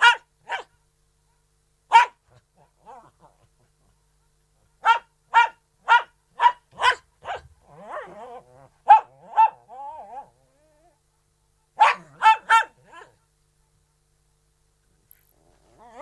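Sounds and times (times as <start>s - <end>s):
dog barking: 0.0s - 0.8s, 1.9s - 3.1s, 4.8s - 8.1s, 8.8s - 9.7s, 11.8s - 13.3s
dog whining: 15.7s - 16.0s.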